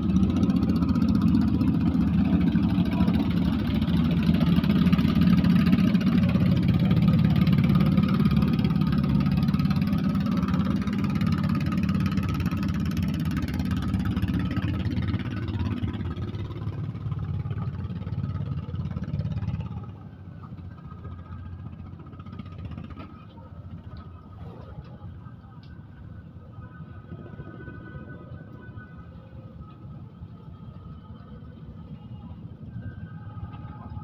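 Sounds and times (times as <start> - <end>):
boat motor running: 0.0 - 25.9.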